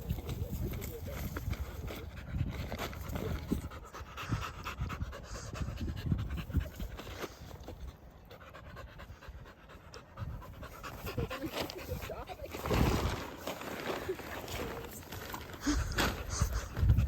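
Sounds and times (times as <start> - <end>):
dog panting: 1.4 - 12.6.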